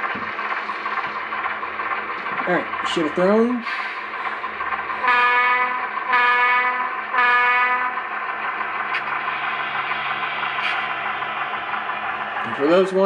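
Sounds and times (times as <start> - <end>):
model diesel engine sound: 0.0 - 13.0
model locomotive horn blasts: 5.0 - 8.0.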